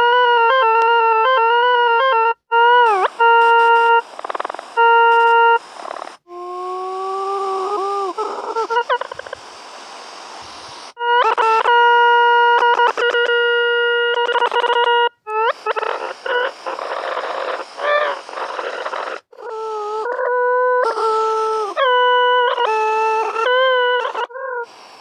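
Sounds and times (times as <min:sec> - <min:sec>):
stepping electronic tones: 0:02.7 - 0:05.6
noisy hiss with wavering pitch: 0:02.8 - 0:25.0.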